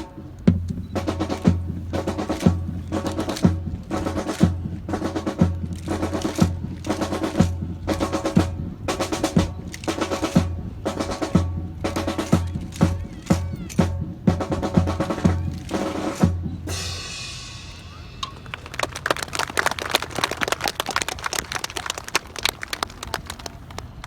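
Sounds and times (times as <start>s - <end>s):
marching snare and bass drums: 0.0s - 18.8s.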